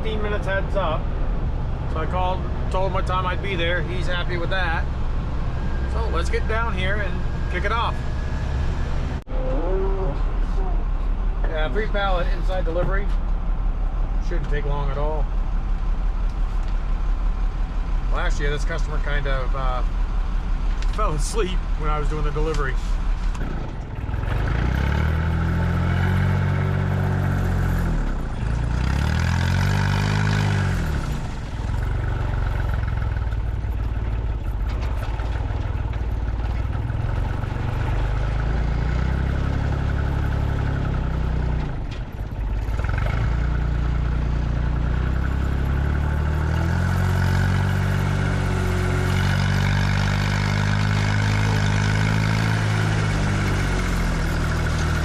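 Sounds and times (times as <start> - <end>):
truck engine revving and shifting gear: 0.0 - 9.3, 22.0 - 55.0.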